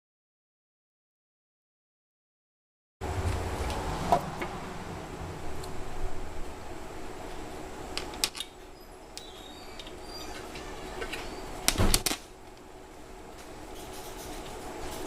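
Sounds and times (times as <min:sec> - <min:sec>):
steady hum: 0:03.0 - 0:15.0.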